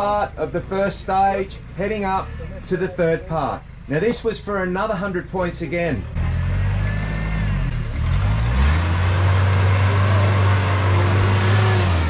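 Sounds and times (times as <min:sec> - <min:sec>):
truck engine revving under load: 0:05.9 - 0:12.0.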